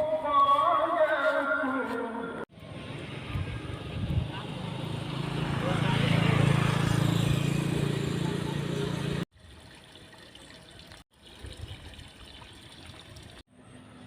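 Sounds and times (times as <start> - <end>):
motorcycle engine running: 2.6 - 9.2
wind noise: 3.2 - 4.4.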